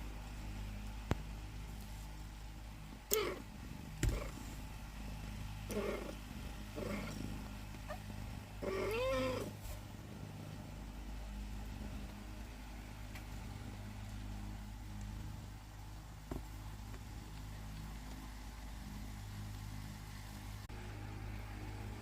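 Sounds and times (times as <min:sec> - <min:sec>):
cat meowing: 0:08.6 - 0:09.5.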